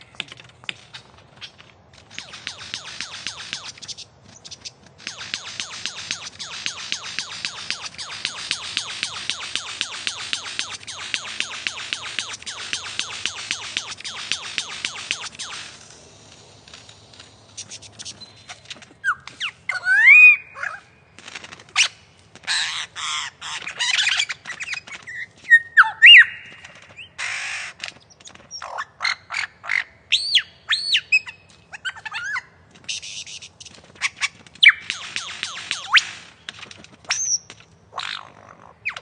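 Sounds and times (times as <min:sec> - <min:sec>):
lyrebird singing: 0:00.0 - 0:15.9, 0:17.5 - 0:21.1, 0:21.8 - 0:39.0
rapid bird clicks: 0:00.0 - 0:19.6, 0:32.8 - 0:39.0
harsh rasping bird calls: 0:00.0 - 0:39.0
bird whistles sweeping in pitch: 0:19.0 - 0:20.8, 0:25.5 - 0:26.5.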